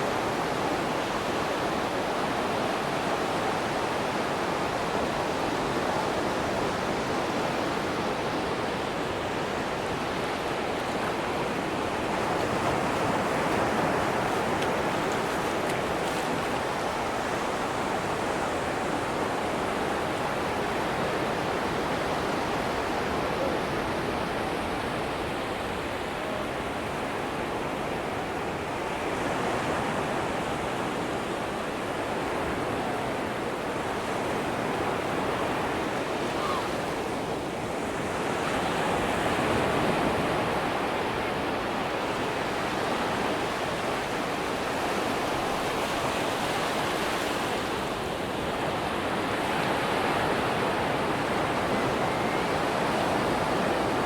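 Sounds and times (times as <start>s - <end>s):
surf breaking on sandy beach: 5.6s - 19.1s.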